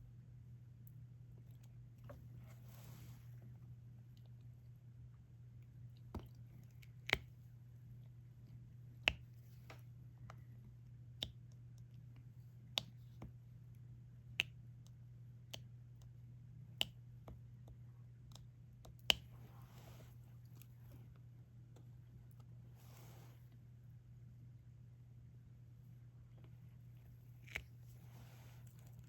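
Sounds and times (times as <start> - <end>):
faint low hum: 0.0 - 29.0
soft rustle: 2.2 - 3.6, 19.4 - 21.1, 22.7 - 23.6, 26.6 - 29.0.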